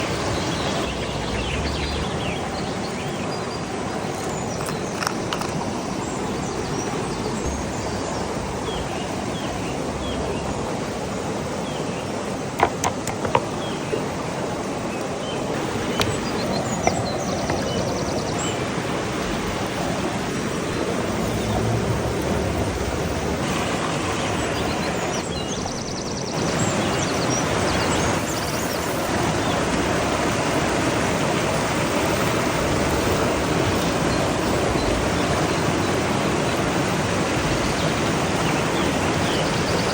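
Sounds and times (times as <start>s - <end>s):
birds chirping: 0.0s - 39.9s
steady rushing outdoor noise: 0.0s - 39.9s.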